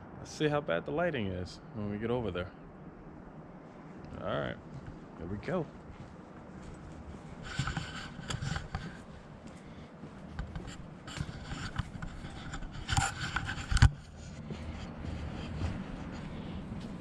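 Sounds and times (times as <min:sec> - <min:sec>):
rustling and scraping handling noise: 0:03.8 - 0:17.0.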